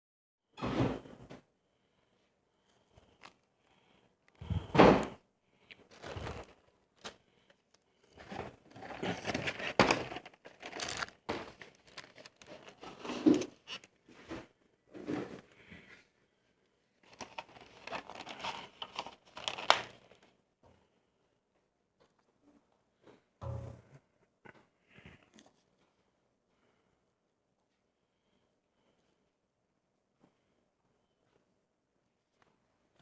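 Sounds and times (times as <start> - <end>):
food packaging crinkling: 5.7 - 14.0, 17.0 - 20.3.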